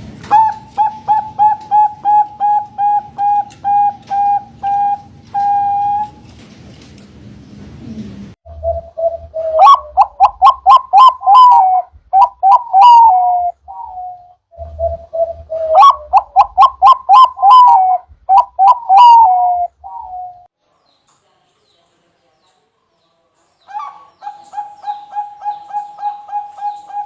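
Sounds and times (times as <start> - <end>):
dove cooing: 0.2 - 6.2, 8.5 - 20.5, 23.7 - 27.0.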